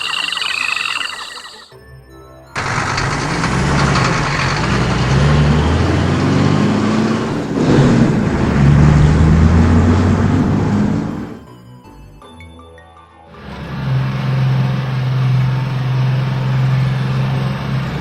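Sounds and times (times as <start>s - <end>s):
heavy truck engine running: 2.6s - 11.4s, 13.4s - 18.0s
loud rushing noise: 6.9s - 11.4s.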